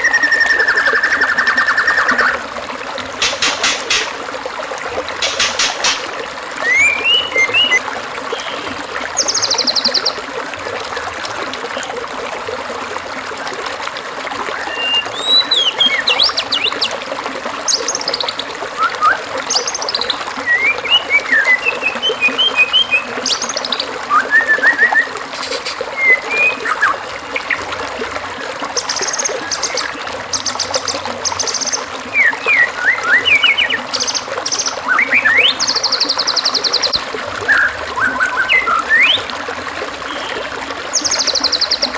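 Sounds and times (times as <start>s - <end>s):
trickling water: 0.0s - 41.9s
songbird calls: 3.2s - 4.2s, 5.2s - 6.0s, 6.6s - 10.2s, 14.6s - 17.0s, 17.7s - 27.6s, 28.3s - 39.3s.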